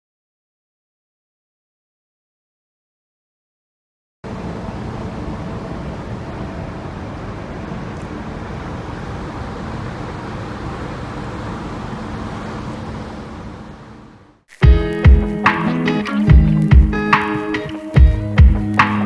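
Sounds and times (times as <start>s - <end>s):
motorcycle engine hum: 14.6s - 19.0s.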